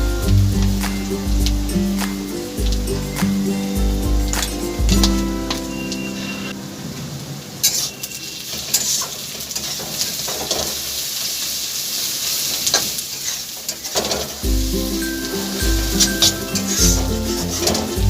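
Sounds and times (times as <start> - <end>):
background music: 0.0 - 7.3, 14.4 - 18.0
food sizzling in a pan: 0.0 - 18.0.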